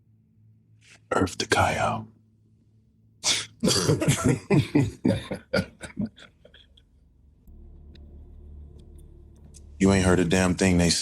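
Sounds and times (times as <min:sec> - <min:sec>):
person coughing: 0:03.2 - 0:06.2.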